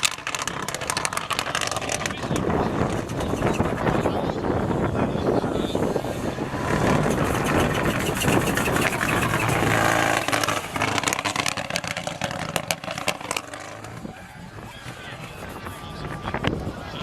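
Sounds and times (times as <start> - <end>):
engine cracks and pops: 0.0 - 4.1, 6.6 - 14.1
rally car engine revving: 0.0 - 17.0.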